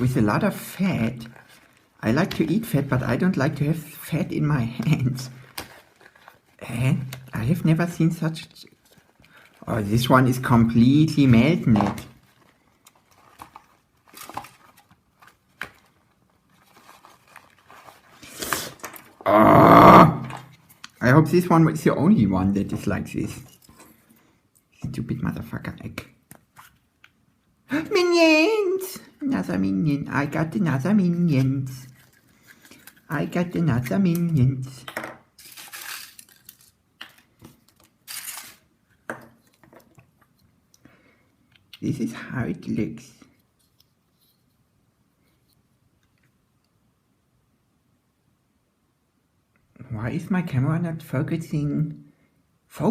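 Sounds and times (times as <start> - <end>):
plastic toy pieces rustling: 5.3 - 6.6, 11.7 - 19.2, 31.9 - 33.1, 35.4 - 40.4
foil wrapper crinkling: 5.3 - 7.3, 12.1 - 19.2, 35.4 - 38.7.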